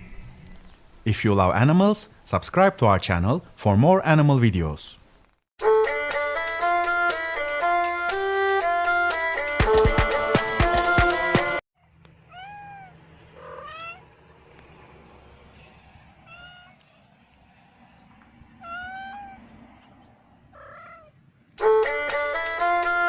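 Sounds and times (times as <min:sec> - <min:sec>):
music: 0:05.6 - 0:11.6, 0:21.6 - 0:23.0
cat meowing: 0:12.3 - 0:14.1, 0:16.2 - 0:16.9, 0:18.6 - 0:19.5, 0:20.6 - 0:21.2.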